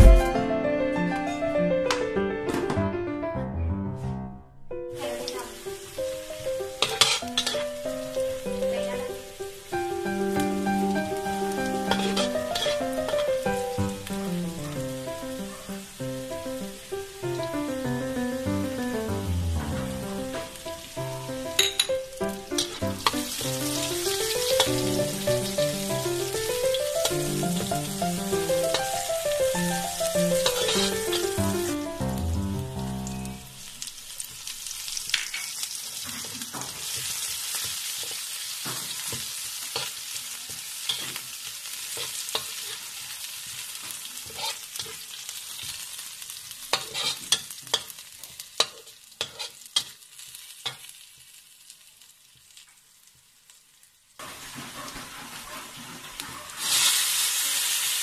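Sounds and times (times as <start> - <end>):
background music: 0.0 - 6.8, 7.6 - 33.6
food sizzling in a pan: 4.9 - 58.0.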